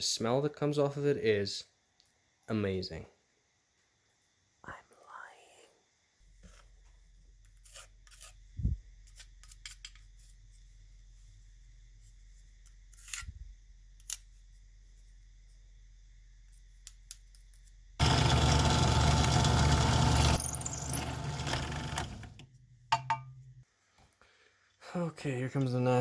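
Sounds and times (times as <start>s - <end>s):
faint workshop hum: 0.0s - 26.0s
electric shop machine running: 18.0s - 22.4s.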